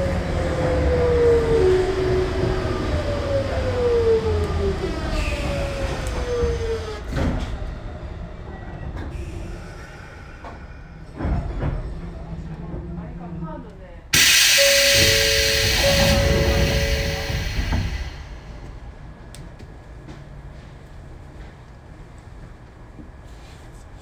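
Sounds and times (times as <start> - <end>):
rail and running noise: 0.0 - 24.0
train stopping clunk: 14.2 - 19.0
electric train inverter whine: 14.2 - 19.5.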